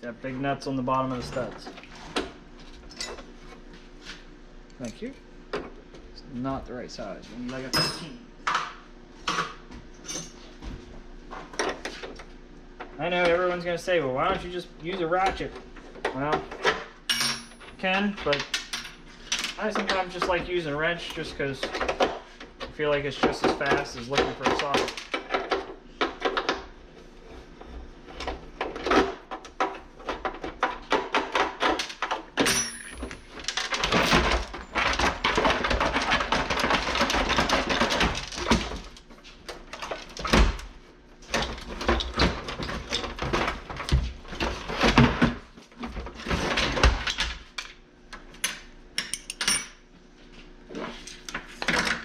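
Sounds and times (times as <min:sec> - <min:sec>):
dense rattling and scraping: 0:33.4 - 0:39.0.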